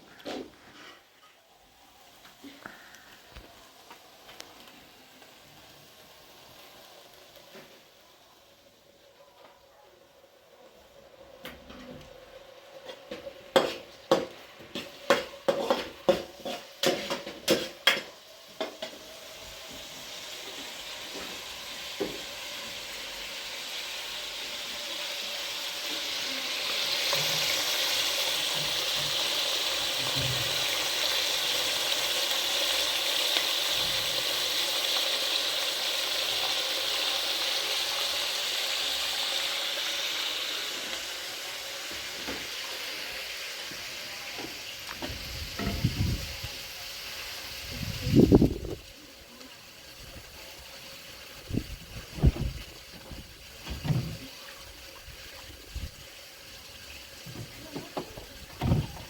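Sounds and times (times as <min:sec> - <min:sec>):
food sizzling in a hot pan: 0:00.0 - 0:09.0, 0:10.3 - 0:59.0.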